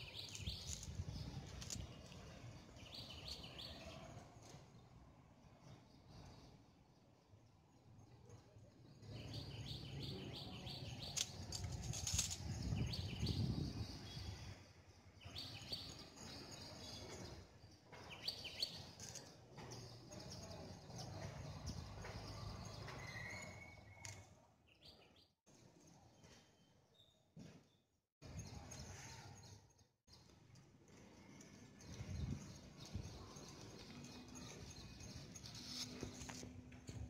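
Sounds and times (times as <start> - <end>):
small birds chirping: 0.0 - 4.2.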